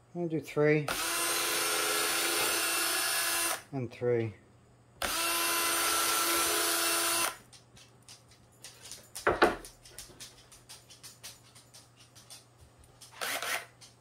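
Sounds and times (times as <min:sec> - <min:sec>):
screw gun whirring: 0:00.9 - 0:03.6, 0:05.0 - 0:07.4, 0:13.1 - 0:13.8.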